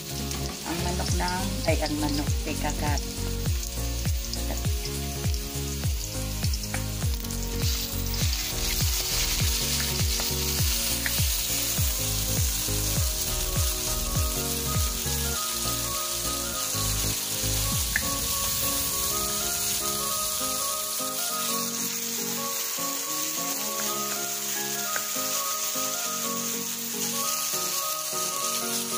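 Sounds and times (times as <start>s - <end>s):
background music with low beat: 0.0s - 20.9s
food sizzling in oil: 0.0s - 28.9s.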